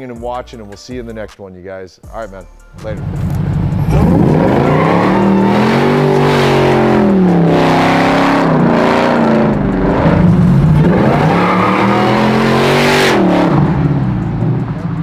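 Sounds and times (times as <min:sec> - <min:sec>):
tires spinning: 0:03.4 - 0:15.0
car engine revving hard: 0:03.5 - 0:14.8.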